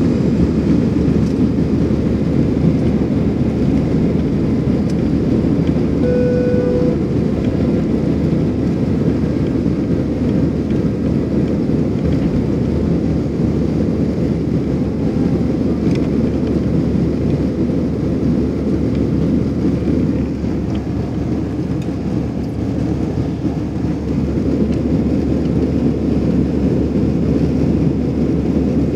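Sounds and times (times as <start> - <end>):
airplane cabin roar: 0.0 - 28.9
short steady tone: 6.0 - 7.2.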